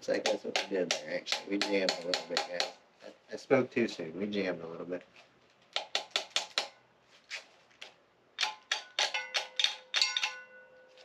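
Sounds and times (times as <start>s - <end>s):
hammer tapping metal: 0.0s - 2.8s, 5.8s - 6.8s, 8.4s - 10.8s.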